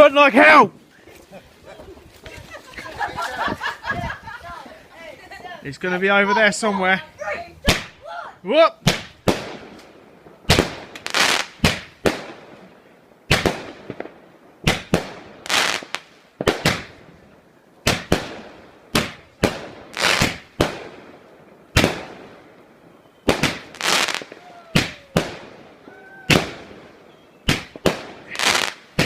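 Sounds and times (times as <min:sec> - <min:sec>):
firework bangs: 0:07.6 - 0:08.1, 0:08.8 - 0:17.1, 0:17.8 - 0:22.6, 0:23.2 - 0:29.0.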